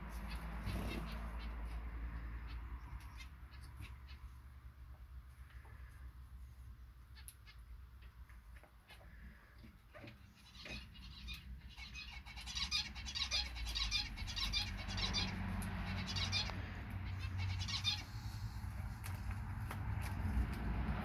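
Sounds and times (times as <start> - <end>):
birds chattering: 0.0 - 4.4, 8.8 - 19.2.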